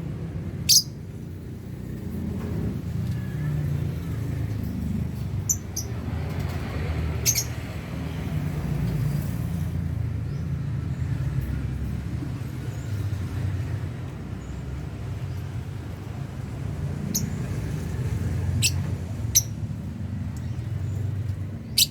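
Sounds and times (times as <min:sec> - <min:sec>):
lovebird chirps: 0:00.7 - 0:00.9.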